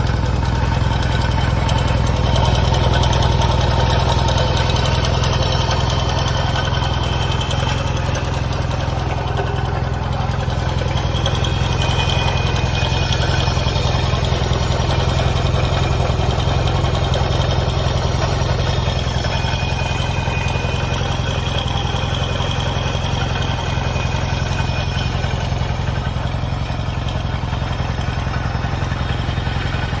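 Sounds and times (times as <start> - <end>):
motorcycle engine idling: 0.0 - 30.0.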